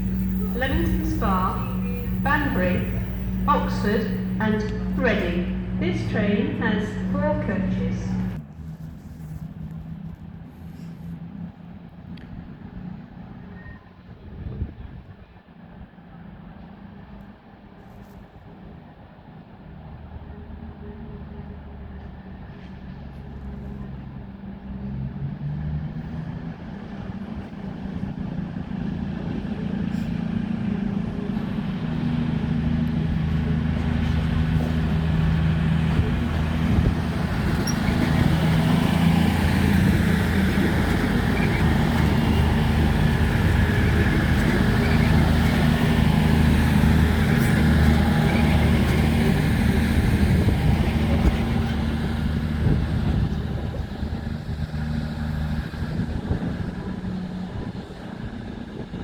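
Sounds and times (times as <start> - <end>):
train engine rumble: 0.0 - 59.0.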